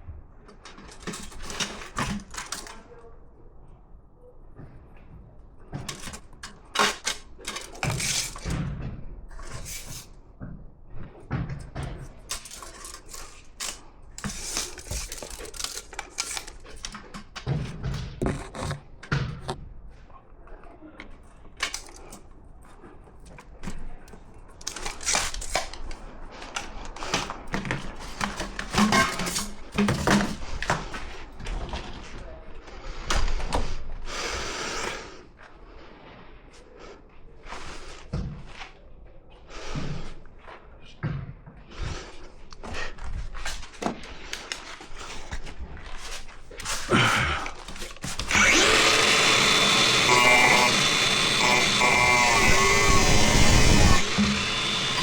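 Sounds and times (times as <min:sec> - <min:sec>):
tools and parts clattering: 0:00.5 - 0:03.0, 0:05.7 - 0:10.1, 0:11.4 - 0:19.6, 0:21.0 - 0:32.0.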